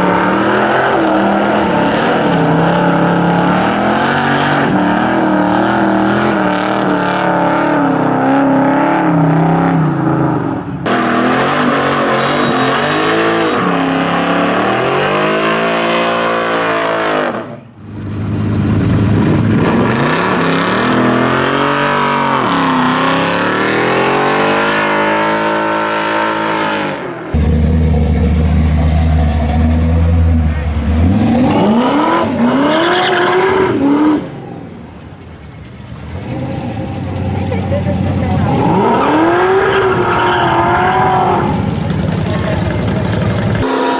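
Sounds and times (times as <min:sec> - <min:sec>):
car engine revving: 0:00.0 - 0:43.9
car engine idling unevenly: 0:27.4 - 0:31.1, 0:34.5 - 0:38.8, 0:41.3 - 0:43.7.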